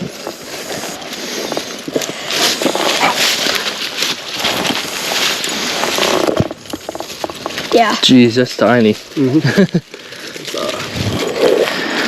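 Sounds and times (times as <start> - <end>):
footsteps crunching through dry leaves: 0.0 - 12.0.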